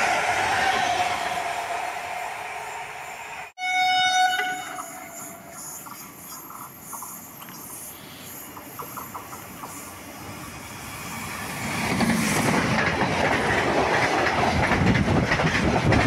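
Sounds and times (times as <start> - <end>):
faint rail noise: 0.0 - 16.0
train coaches rolling past: 0.0 - 16.0
train horn: 3.6 - 5.6.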